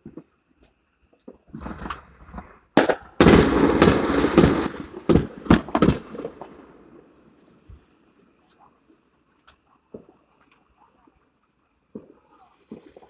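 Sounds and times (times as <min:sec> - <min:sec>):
fireworks crackling: 0:01.5 - 0:07.8
fireworks sharp bangs: 0:01.6 - 0:07.8.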